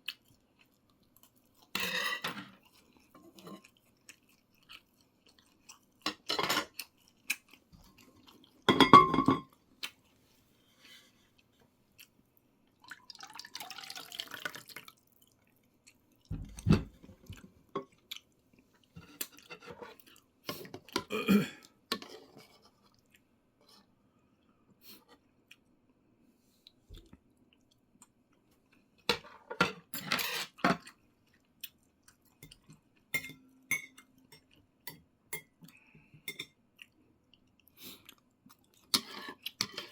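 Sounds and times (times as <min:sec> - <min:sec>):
chewing: 0:00.0 - 0:01.7, 0:02.6 - 0:08.7, 0:36.8 - 0:39.9.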